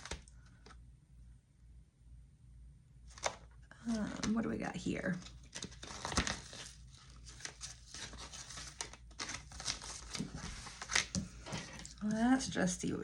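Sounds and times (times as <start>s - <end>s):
paper money rustling: 5.2s - 12.0s.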